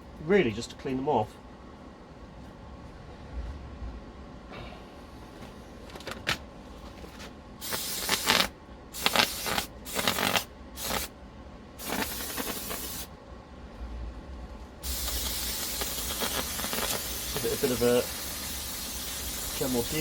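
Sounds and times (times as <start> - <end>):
aerosol spray hissing: 7.6 - 11.1, 11.8 - 13.1, 14.8 - 20.0.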